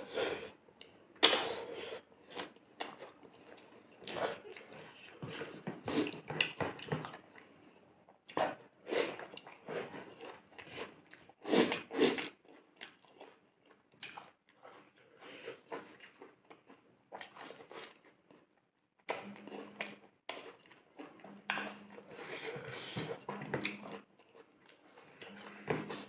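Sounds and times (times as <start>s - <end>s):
person chewing food: 2.3s - 26.0s.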